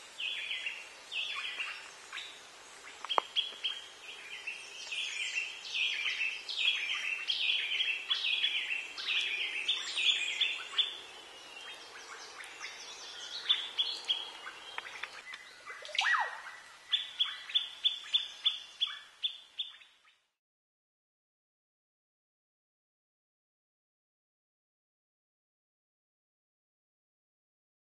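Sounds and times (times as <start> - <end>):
birds calling and singing: 0.0 - 20.3.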